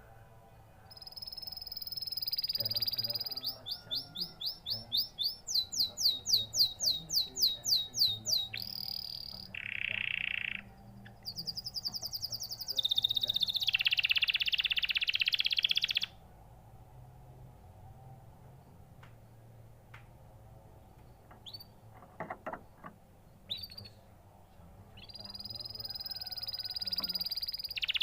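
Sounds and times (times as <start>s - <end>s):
canary singing: 0.8s - 16.2s, 20.8s - 24.2s, 24.9s - 28.0s.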